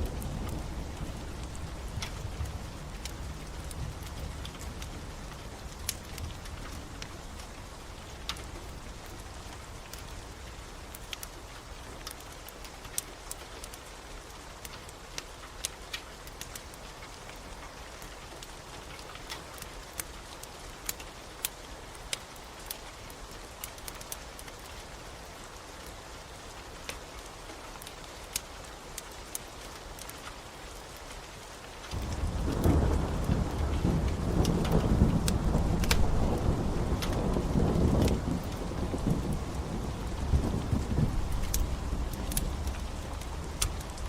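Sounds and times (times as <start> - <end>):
steady rain: 0.0 - 44.0
wood fire crackling: 0.0 - 44.0
rolling thunder rumble: 31.9 - 44.0.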